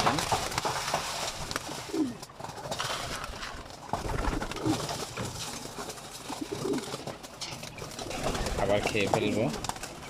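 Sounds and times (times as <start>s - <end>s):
clicks and shuffling: 0.0s - 10.0s
pigeons cooing: 1.5s - 2.8s, 4.0s - 10.0s.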